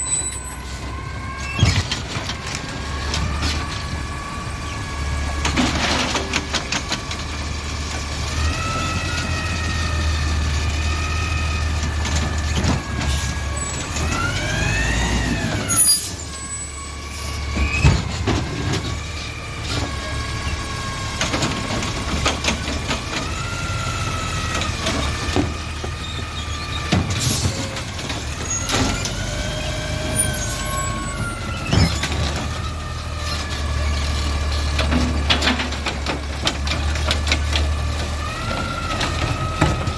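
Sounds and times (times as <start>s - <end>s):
garbage truck engine rumble: 0.0s - 39.9s
knocks and clanks: 34.6s - 39.9s.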